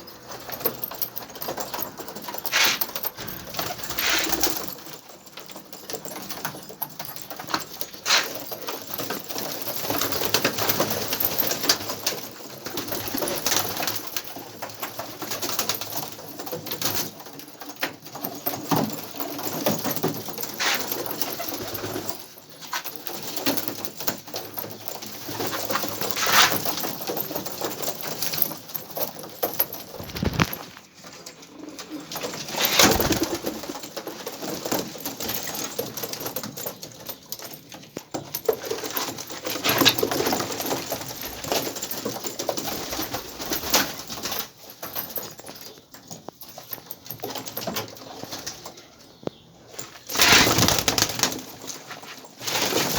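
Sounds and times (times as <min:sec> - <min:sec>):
pigeons cooing: 0:02.4 - 0:04.7, 0:31.4 - 0:33.8.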